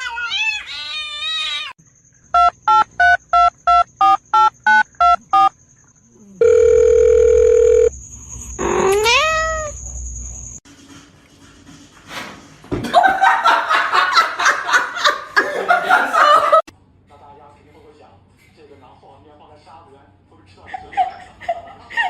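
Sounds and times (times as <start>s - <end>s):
long steady beep: 2.3s - 5.6s, 6.4s - 7.9s
short electronic beeps: 2.4s - 5.5s
cat meowing: 8.6s - 9.8s.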